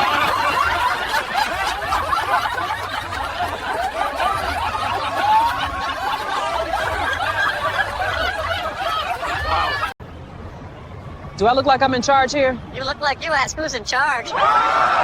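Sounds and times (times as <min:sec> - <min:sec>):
group of people laughing: 0:00.0 - 0:10.0.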